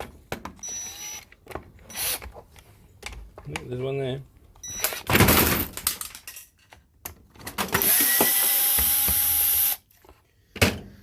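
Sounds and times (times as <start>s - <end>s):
cordless drill running: 0.6s - 1.3s, 1.9s - 2.2s, 7.8s - 9.8s.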